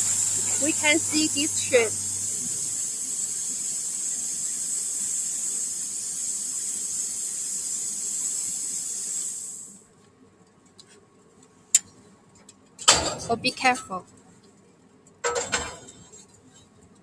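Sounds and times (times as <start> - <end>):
plasma torch hissing: 0.0 - 9.8.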